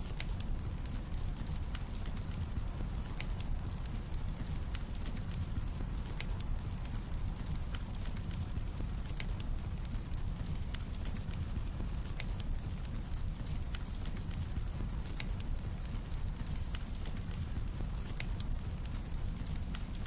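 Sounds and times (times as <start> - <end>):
campfire crackling and popping: 0.0 - 20.0
crickets chirping: 9.5 - 20.0.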